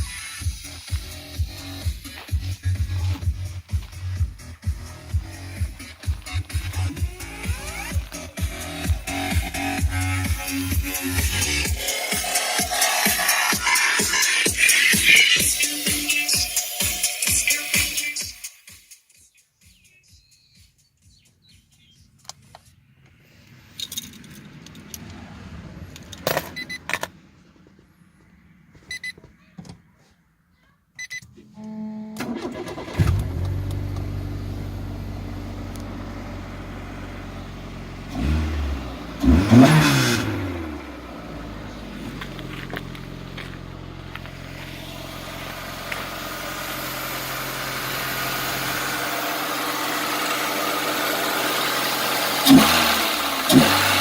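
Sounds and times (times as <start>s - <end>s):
car engine idling: 0.0s - 17.6s, 31.6s - 54.0s
engine revving: 0.1s - 16.4s, 23.8s - 27.9s, 32.2s - 54.0s
keys jingling: 23.7s - 25.0s
engine starter cranking: 32.1s - 34.4s, 44.2s - 54.0s.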